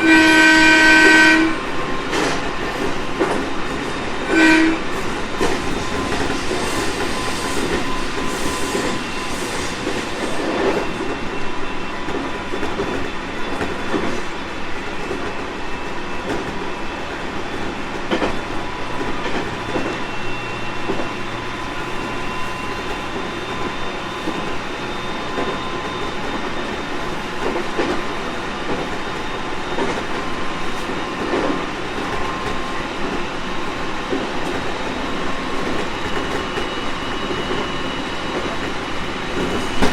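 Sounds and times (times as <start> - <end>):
train wheel and rail rumble: 0.0 - 39.9
clacks over rail joints: 1.0 - 9.0, 12.0 - 20.1, 22.8 - 37.7.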